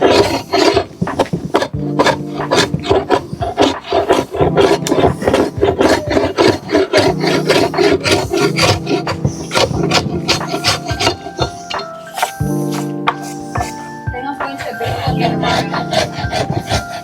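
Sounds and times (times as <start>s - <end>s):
hand tool rasping across wood: 0.0s - 17.0s.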